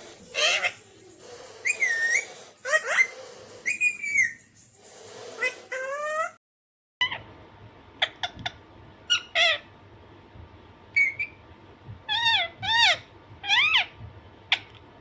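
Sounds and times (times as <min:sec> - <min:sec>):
parakeet whistled calls: 0:00.0 - 0:06.4, 0:11.0 - 0:11.4.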